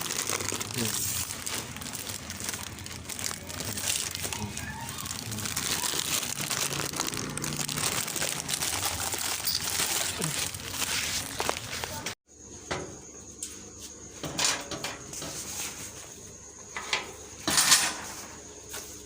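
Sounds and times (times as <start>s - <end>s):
crinkling and rustling: 0.0s - 12.2s
faint voices: 0.5s - 12.2s.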